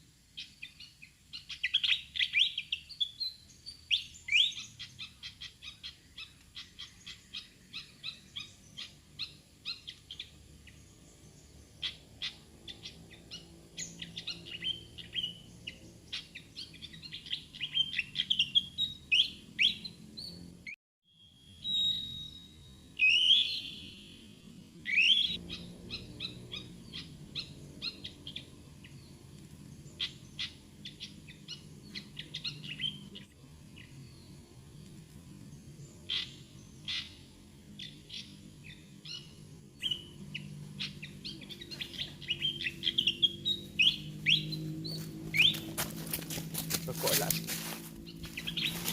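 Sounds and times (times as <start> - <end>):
bird chip notes and whistles: 0.4 - 10.3, 13.3 - 20.4, 21.1 - 29.0, 36.1 - 46.0, 48.0 - 48.9.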